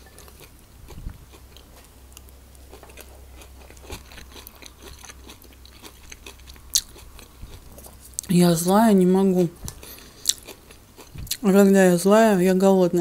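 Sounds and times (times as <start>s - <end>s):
faint low hum: 0.0s - 13.0s
close-up chewing with mouth clicks: 0.1s - 8.3s, 9.6s - 11.5s.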